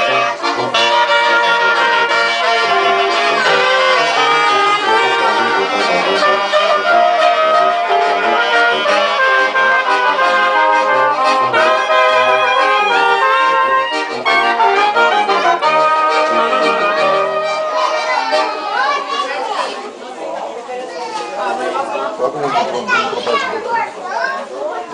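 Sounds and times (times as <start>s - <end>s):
brass band playing: 0.0s - 19.2s.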